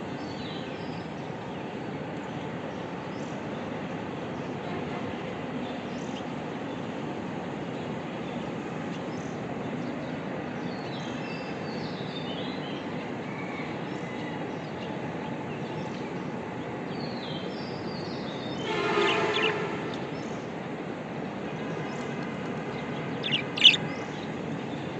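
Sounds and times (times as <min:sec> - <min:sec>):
steady background noise: 0:00.0 - 0:24.9
harsh bird call: 0:18.6 - 0:19.9, 0:23.2 - 0:23.8
budgerigars chirping: 0:23.2 - 0:23.8.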